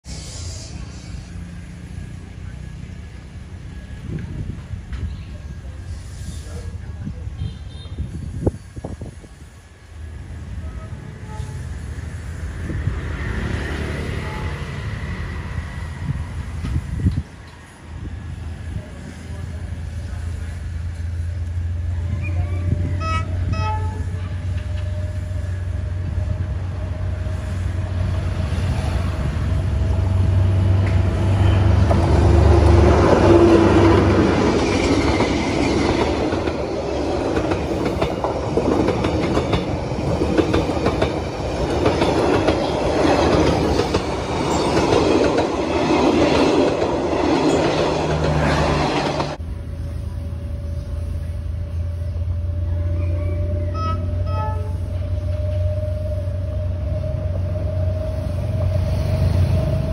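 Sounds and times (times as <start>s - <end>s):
diesel locomotive engine drone: 0.0s - 59.9s
clickety-clack of train wheels: 16.5s - 17.6s, 30.7s - 49.4s.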